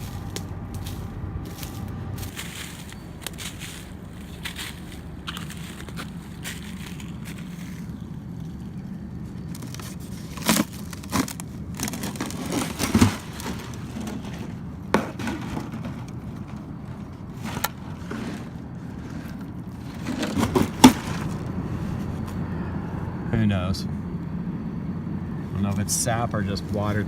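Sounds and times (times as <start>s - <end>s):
low rumble: 0.0s - 15.0s, 15.8s - 27.0s
footsteps crunching on forest debris: 0.0s - 22.4s.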